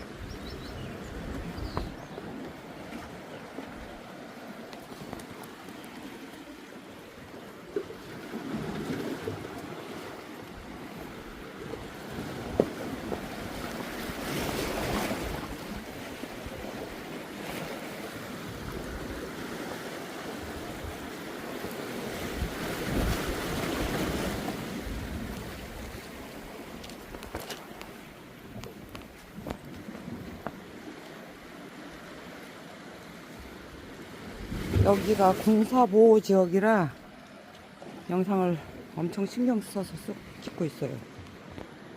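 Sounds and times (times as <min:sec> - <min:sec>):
sea waves washing against rocks: 0:01.0 - 0:41.9
wind buffeting microphone: 0:22.2 - 0:26.0.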